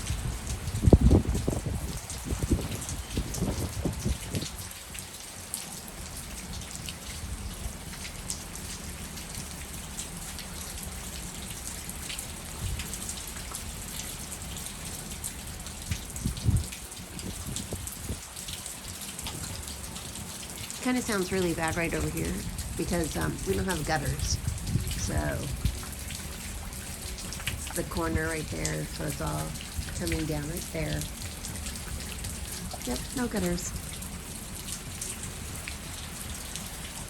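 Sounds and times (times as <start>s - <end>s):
low thunder rumbling: 0.0s - 4.5s, 20.9s - 25.9s
heavy rain patter: 0.0s - 37.0s.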